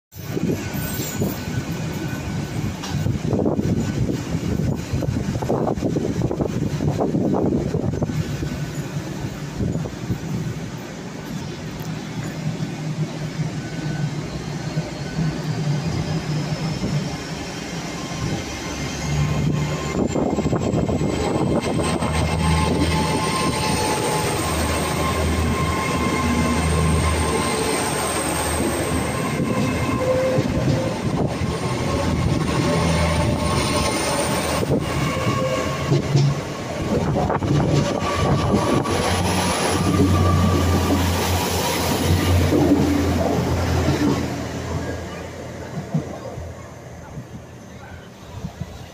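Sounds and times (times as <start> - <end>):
high train whine rising: 0.1 - 48.9
train engine hum: 0.1 - 48.9
train wheels knocking: 28.7 - 44.4.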